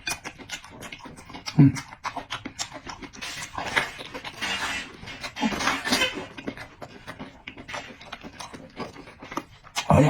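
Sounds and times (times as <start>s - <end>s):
wet chewing and smacking: 0.0s - 10.0s
person slurping: 1.3s - 2.1s.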